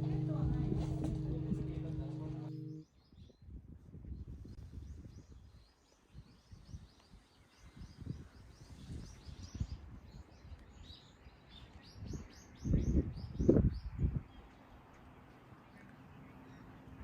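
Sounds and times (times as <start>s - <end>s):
low bumps: 0.0s - 2.8s.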